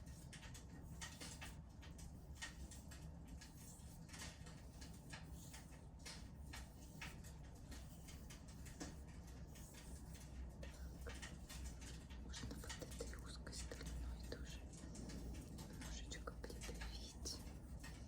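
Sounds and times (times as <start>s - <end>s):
wood fire crackling: 0.0s - 12.8s
low steady hum: 0.0s - 18.0s.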